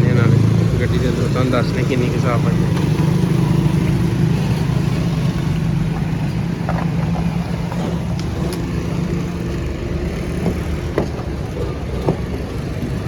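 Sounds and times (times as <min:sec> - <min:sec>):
car engine idling: 0:00.0 - 0:13.0
light engine clicks and knocks: 0:04.7 - 0:08.8, 0:10.2 - 0:13.0.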